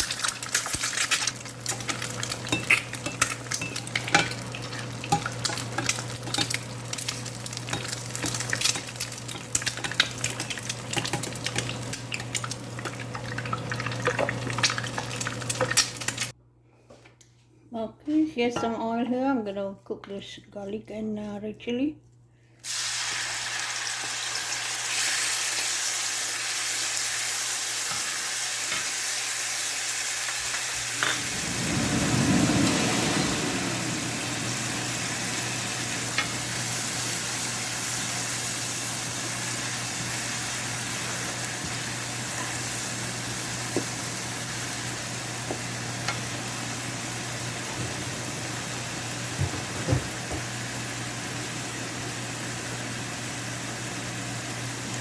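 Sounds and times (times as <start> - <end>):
garlic sizzling in hot oil: 0.0 - 16.3, 22.6 - 55.0
steady low hum: 30.9 - 37.5.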